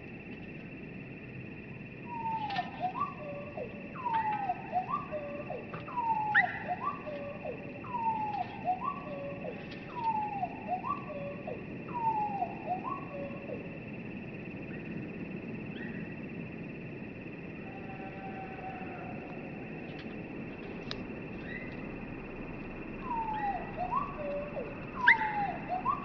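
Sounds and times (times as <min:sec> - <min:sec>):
slowed-down bird song: 0:02.0 - 0:13.8, 0:19.8 - 0:26.0.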